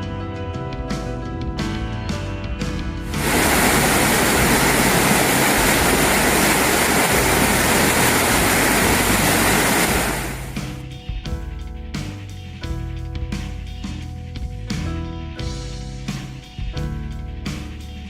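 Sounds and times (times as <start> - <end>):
background music: 0.0 - 18.0
rushing water: 3.1 - 10.6.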